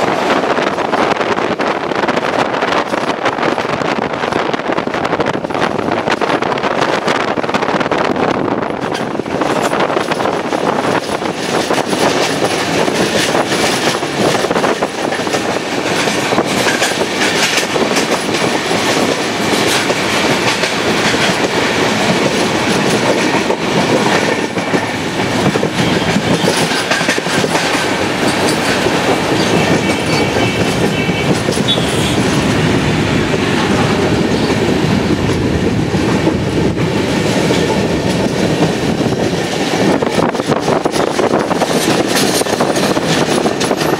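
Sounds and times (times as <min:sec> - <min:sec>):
train wheels rumbling on track: 0:00.0 - 0:43.9
wheels clicking over rail joints: 0:08.7 - 0:32.5, 0:33.6 - 0:43.9.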